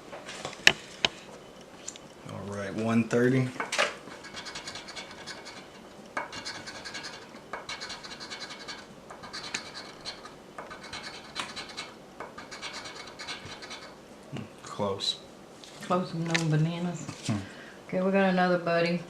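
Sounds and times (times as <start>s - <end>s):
scratching lottery ticket: 4.1s - 14.0s.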